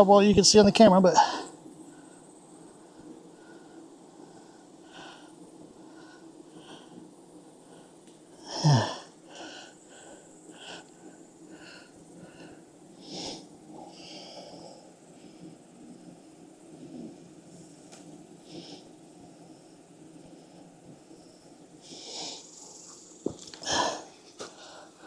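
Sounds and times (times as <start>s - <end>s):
soft airy puffs: 9.0s - 25.0s.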